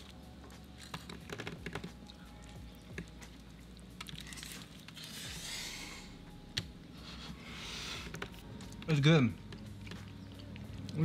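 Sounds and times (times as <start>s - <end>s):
chewing food: 0.0s - 5.2s, 8.0s - 11.0s.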